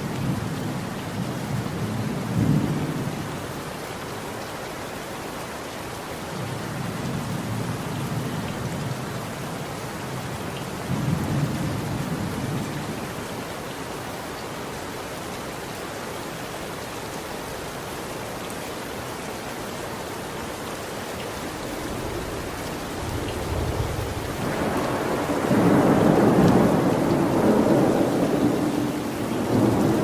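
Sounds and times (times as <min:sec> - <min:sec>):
steady rain: 0:00.0 - 0:30.0
rolling thunder: 0:21.6 - 0:30.0.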